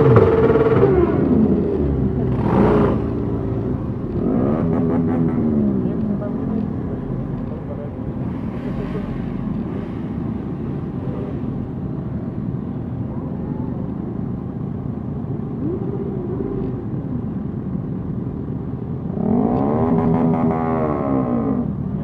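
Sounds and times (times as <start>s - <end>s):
motorcycle engine revving: 0.0s - 11.5s, 19.0s - 22.0s
motorcycle engines running: 0.0s - 22.0s.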